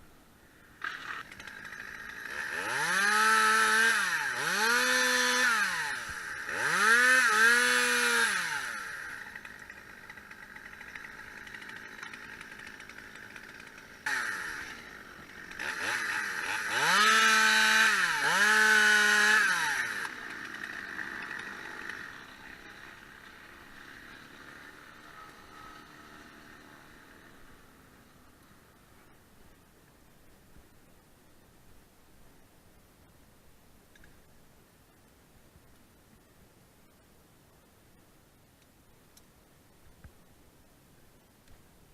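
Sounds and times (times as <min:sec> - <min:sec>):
chainsaw revving: 0:00.7 - 0:28.8.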